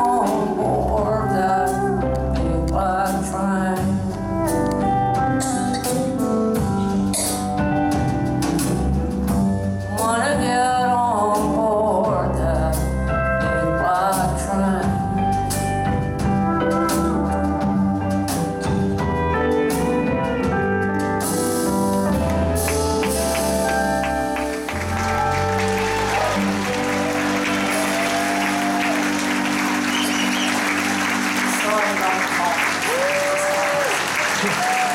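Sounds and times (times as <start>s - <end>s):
live band playing: 0.0s - 34.9s
audience applause: 22.3s - 34.9s.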